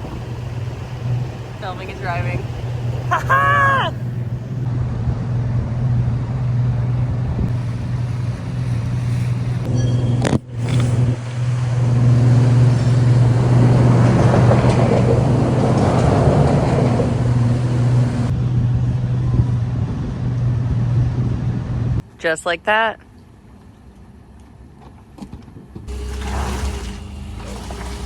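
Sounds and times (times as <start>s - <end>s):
boat motor running: 0.0s - 4.7s, 6.8s - 18.3s, 25.9s - 28.0s.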